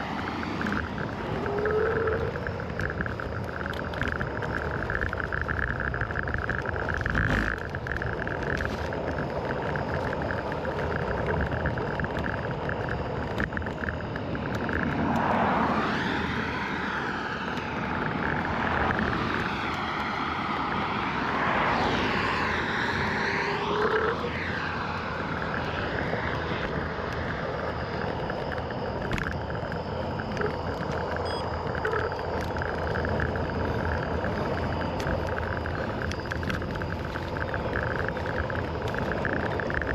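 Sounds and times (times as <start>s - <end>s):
scooter engine running: 0.0s - 16.0s, 23.4s - 24.4s, 25.1s - 39.9s.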